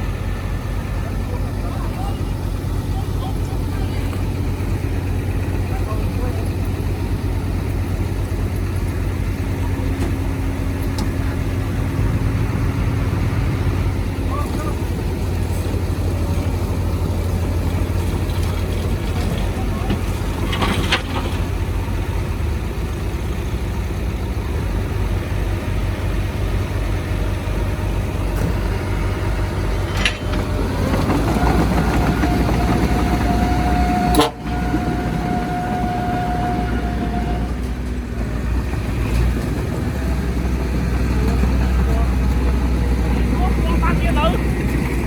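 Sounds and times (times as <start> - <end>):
heavy diesel engines rumbling: 0.0 - 45.0
long vehicle horn blast: 33.3 - 37.6.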